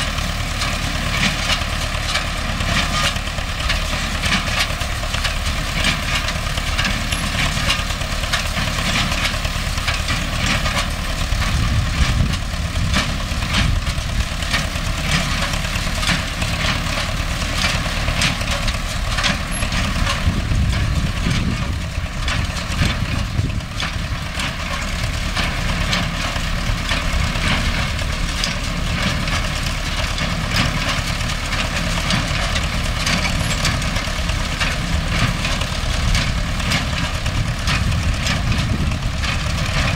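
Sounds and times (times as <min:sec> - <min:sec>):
hay baler clattering and knocking: 0:00.0 - 0:39.9
tractor diesel engine running: 0:00.0 - 0:39.9.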